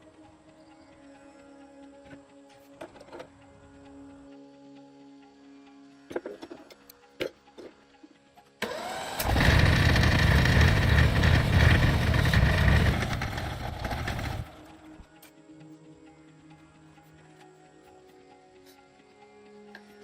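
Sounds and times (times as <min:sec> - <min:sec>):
tractor engine starting and running: 0:08.6 - 0:15.1.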